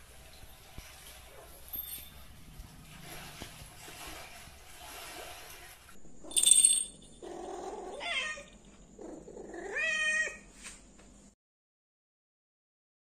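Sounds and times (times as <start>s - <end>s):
cat meowing: 7.7s - 8.5s, 9.5s - 10.5s.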